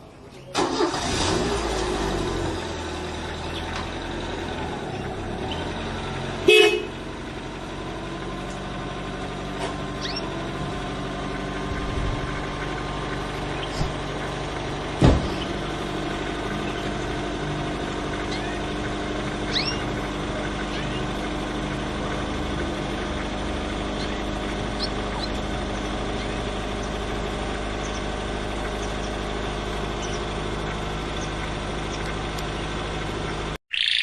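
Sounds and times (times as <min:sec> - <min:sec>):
low engine hum: 0:00.0 - 0:33.6
short horn toot: 0:06.5 - 0:06.9
faint high chirps: 0:33.7 - 0:34.0.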